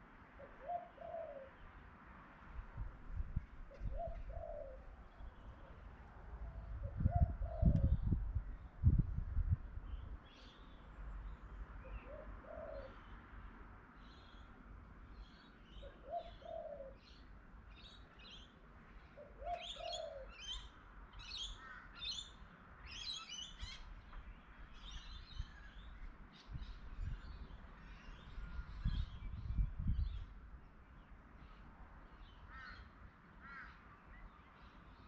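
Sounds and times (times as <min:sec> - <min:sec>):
dove cooing: 0:00.4 - 0:01.5, 0:03.8 - 0:04.9, 0:06.8 - 0:08.0, 0:12.0 - 0:13.0, 0:15.8 - 0:17.0, 0:19.2 - 0:20.4.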